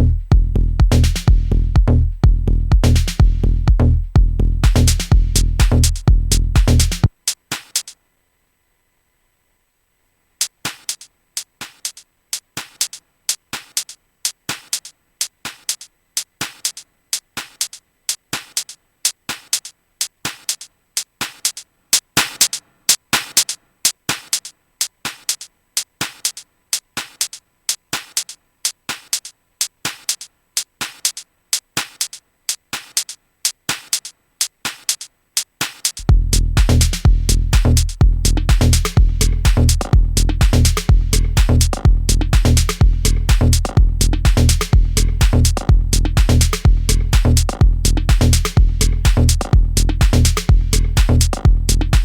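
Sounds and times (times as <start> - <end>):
heavy low kick and bass: 0.0 - 7.1, 36.0 - 52.0
drum machine percussion loop: 0.0 - 8.0, 10.4 - 52.0.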